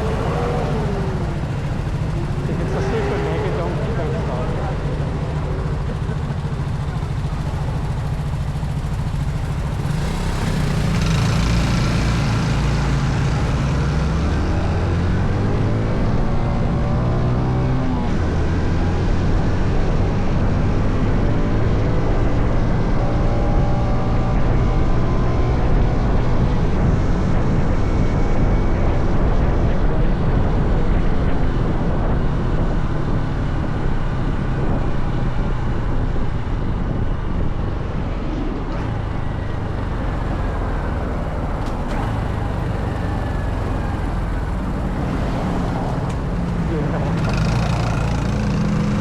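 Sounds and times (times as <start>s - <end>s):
small motorcycle engine running: 0.0s - 17.2s, 37.4s - 49.0s
wind rushing over microphone: 23.9s - 47.3s.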